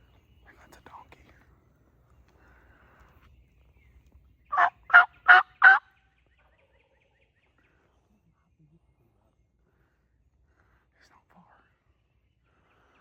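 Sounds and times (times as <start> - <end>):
turkey calling: 4.5 - 5.9.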